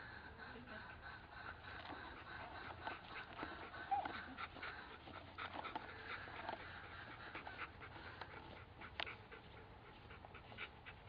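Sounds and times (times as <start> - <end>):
dog panting softly: 0.0 - 11.0.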